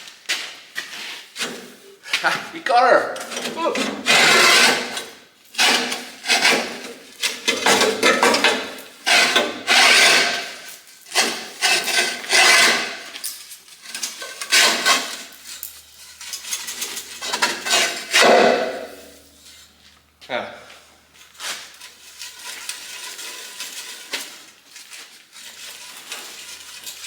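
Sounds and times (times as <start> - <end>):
metal scraping on metal: 3.1 - 19.8, 21.4 - 24.6, 25.4 - 27.0.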